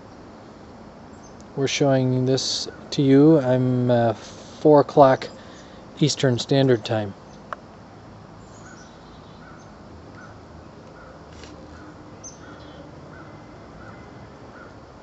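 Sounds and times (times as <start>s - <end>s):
outdoor background hiss: 0.0s - 15.0s
faint high bird chirps: 8.4s - 10.4s, 11.0s - 14.2s.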